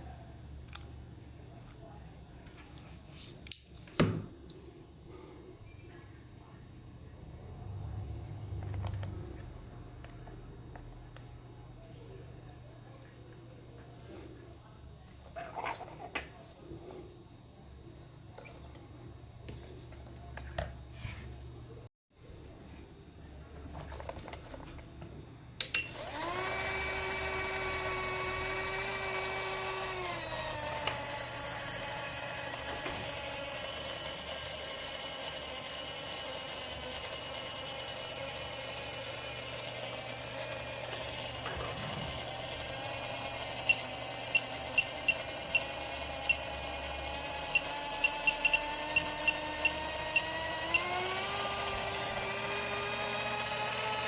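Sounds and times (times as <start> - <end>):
small electric motor whine: 25.9 - 54.0.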